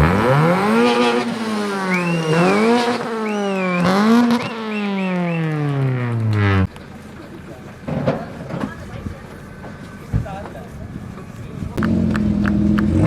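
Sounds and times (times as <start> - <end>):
car engine revving: 0.0 - 6.8, 11.8 - 13.0
high wavering whistle: 1.0 - 5.9.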